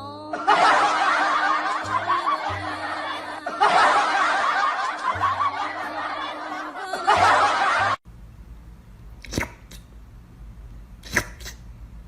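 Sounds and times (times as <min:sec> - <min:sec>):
background music: 0:00.0 - 0:08.0
people laughing: 0:00.3 - 0:08.0.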